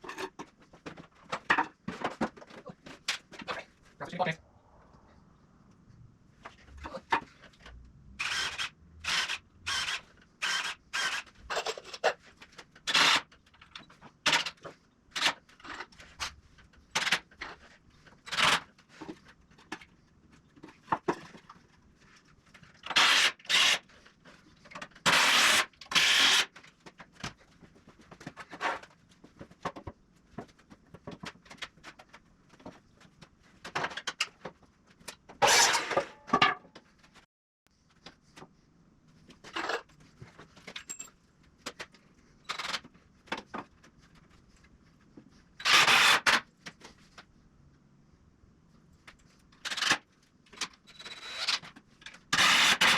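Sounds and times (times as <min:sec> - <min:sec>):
handheld power tool bursts: 0:22.9 - 0:23.8, 0:25.1 - 0:26.5, 0:45.6 - 0:46.4, 0:52.4 - 0:52.9.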